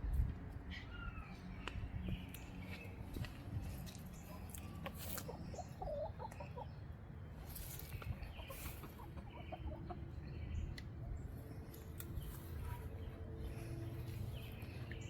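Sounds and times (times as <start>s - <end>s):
low wind rumble: 0.0s - 4.8s.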